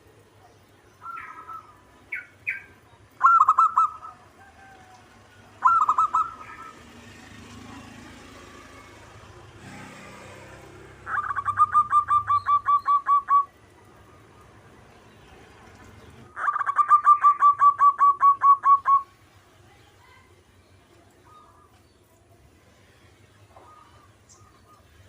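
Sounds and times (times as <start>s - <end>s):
dove cooing: 1.0s - 7.0s, 11.0s - 13.6s, 16.4s - 19.1s.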